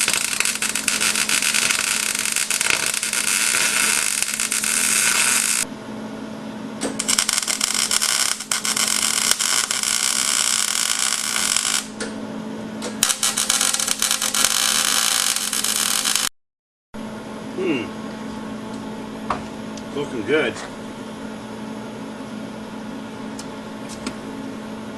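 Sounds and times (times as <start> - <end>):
crackling welding arc: 0.0 - 5.7, 6.8 - 12.0, 13.0 - 16.3
welder hum: 0.0 - 5.8, 6.8 - 12.2, 12.8 - 16.3.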